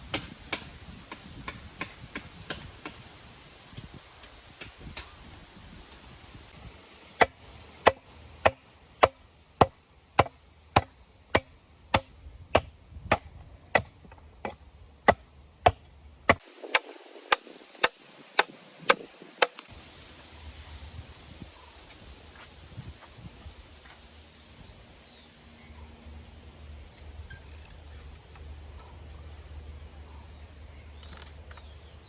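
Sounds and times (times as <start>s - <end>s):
blade chopping wood: 7.2s - 19.7s.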